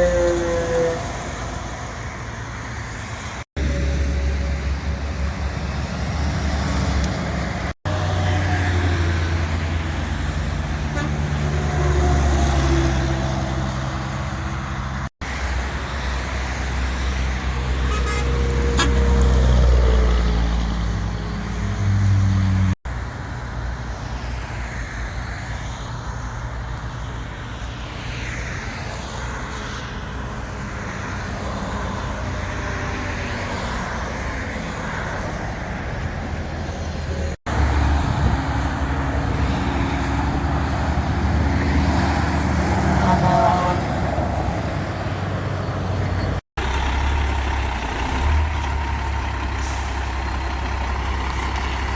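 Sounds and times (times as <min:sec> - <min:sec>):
heavy trucks driving by: 0:00.0 - 0:51.9
traffic noise: 0:00.0 - 0:51.9.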